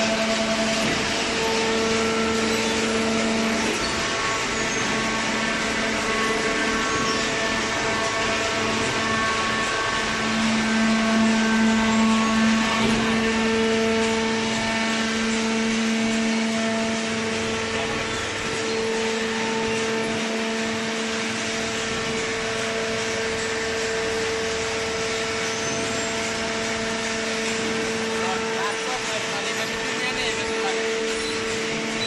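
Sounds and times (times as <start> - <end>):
baler motor and pump humming: 0.0 - 32.0.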